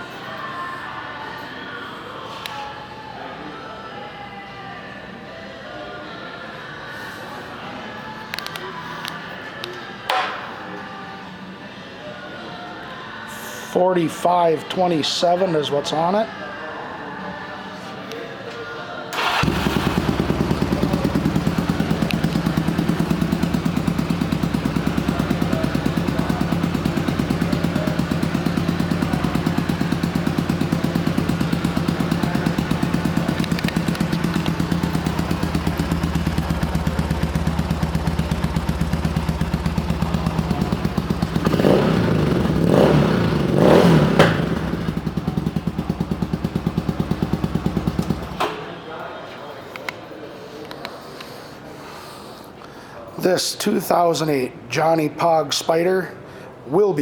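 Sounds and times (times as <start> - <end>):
motorcycle engine idling and revving: 19.2 - 48.4.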